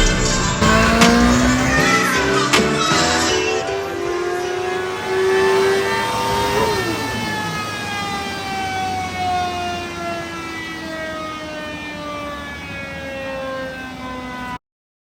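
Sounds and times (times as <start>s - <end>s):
motorcycle engine winding down: 0.0s - 8.0s.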